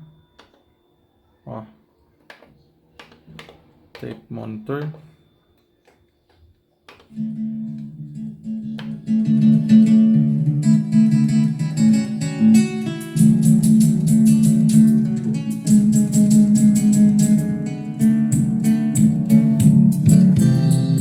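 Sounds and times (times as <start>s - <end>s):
guitar music through loudspeakers: 7.1s - 21.0s.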